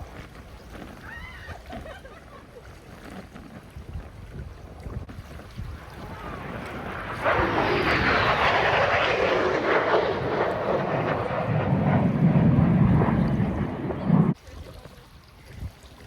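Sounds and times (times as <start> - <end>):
low-flying jet passing: 5.1 - 14.4.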